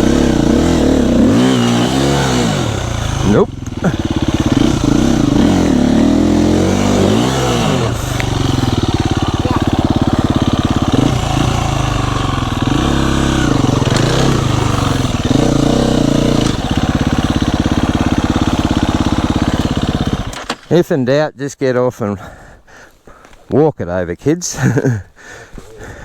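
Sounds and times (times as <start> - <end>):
dirt bike engine running: 0.0 - 20.6.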